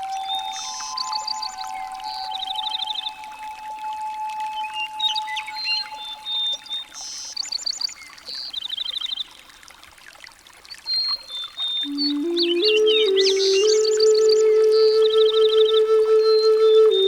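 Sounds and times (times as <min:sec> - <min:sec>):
birds chirping: 0:00.0 - 0:09.1
water trickling: 0:00.0 - 0:17.0.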